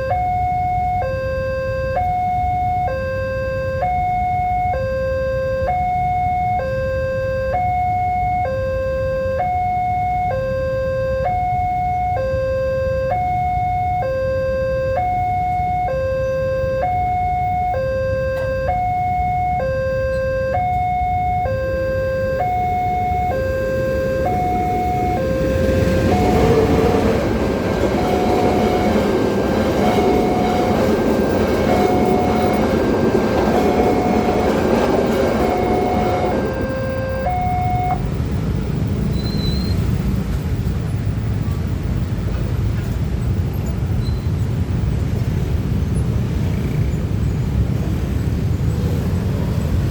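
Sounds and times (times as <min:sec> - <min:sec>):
level crossing alarm two tones: 0:00.0 - 0:38.1
passing diesel train: 0:00.0 - 0:49.9.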